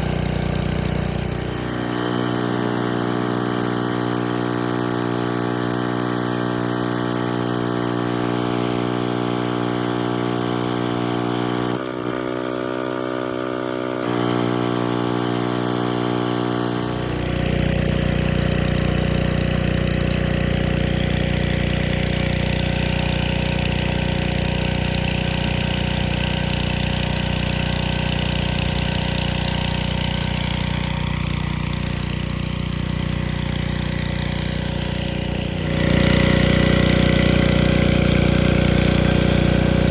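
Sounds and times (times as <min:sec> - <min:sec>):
water spray hissing: 0:00.0 - 0:19.3, 0:28.3 - 0:39.9
pressure washer engine running: 0:00.0 - 0:39.9.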